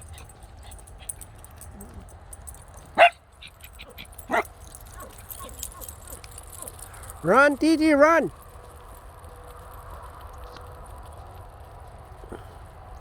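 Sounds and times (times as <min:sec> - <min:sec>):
dog barking: 0:02.9 - 0:03.2, 0:03.8 - 0:06.7.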